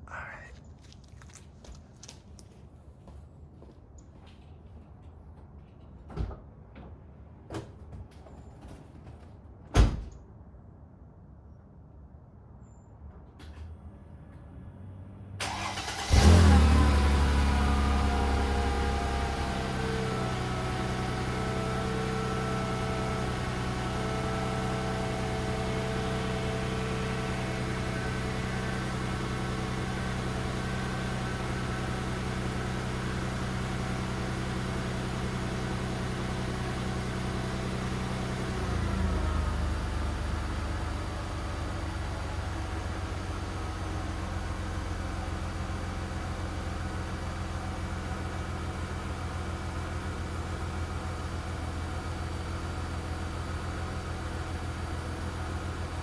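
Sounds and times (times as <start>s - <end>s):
car engine revving and idling: 14.6s - 56.0s
car engine cranking: 15.4s - 34.5s.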